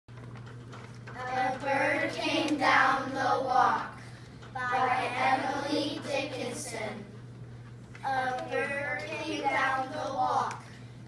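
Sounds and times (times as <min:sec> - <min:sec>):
low steady hum: 0:00.1 - 0:11.0
child speaking: 0:08.0 - 0:10.6.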